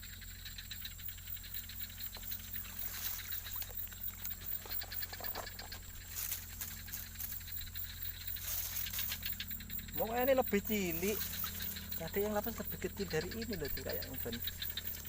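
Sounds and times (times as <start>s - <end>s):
frogs calling in chorus: 0.0s - 15.0s.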